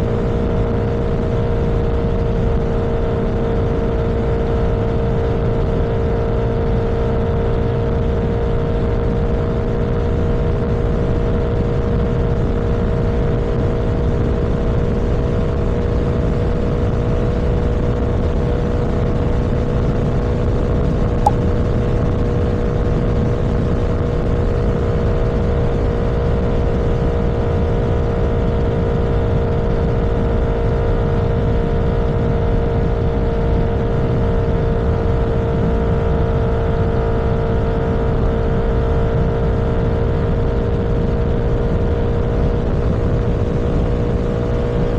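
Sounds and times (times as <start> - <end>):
engine hum: 0.0 - 44.9
road and wind rumble: 0.0 - 44.9
brief click: 21.3 - 21.5.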